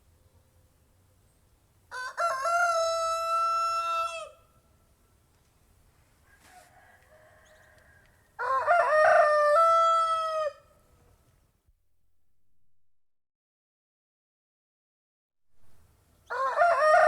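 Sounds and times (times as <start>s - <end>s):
rooster crowing: 1.9s - 4.5s, 6.2s - 10.8s, 16.3s - 17.0s
faint rooster crow: 1.9s - 4.8s, 6.0s - 11.3s, 16.2s - 17.0s.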